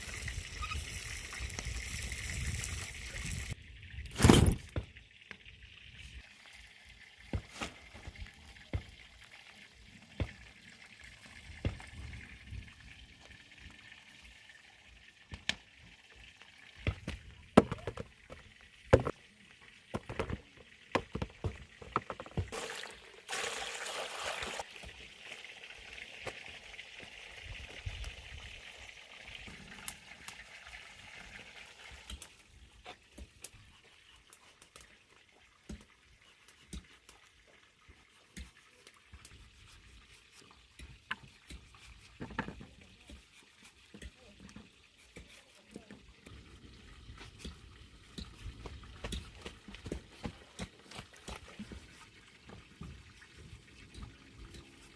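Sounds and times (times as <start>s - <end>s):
water being poured: 19.8s - 27.8s.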